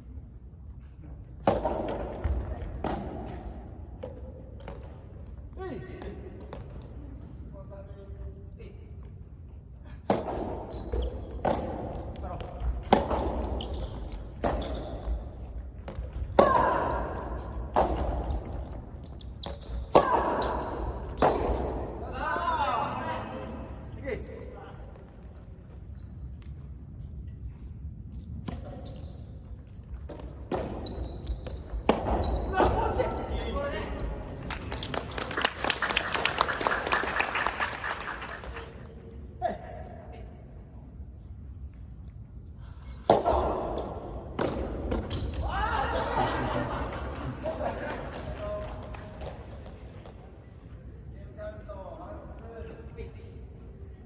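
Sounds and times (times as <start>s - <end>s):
racket striking ball: 1.4s - 3.4s, 10.0s - 10.6s, 31.6s - 32.8s
spectators clapping: 34.3s - 38.9s, 46.6s - 49.6s.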